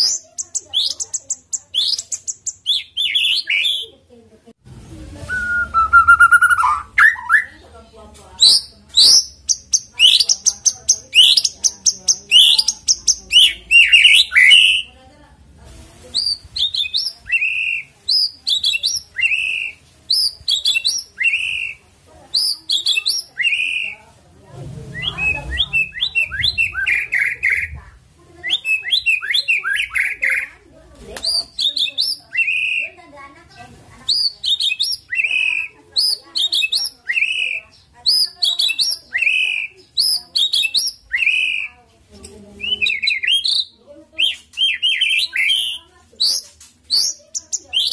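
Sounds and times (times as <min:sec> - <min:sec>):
bird singing whistled notes: 0:05.3 - 0:07.6, 0:08.4 - 0:14.9, 0:25.0 - 0:27.8, 0:28.4 - 0:30.5, 0:31.2 - 0:32.9, 0:34.1 - 0:41.7, 0:42.6 - 0:47.9.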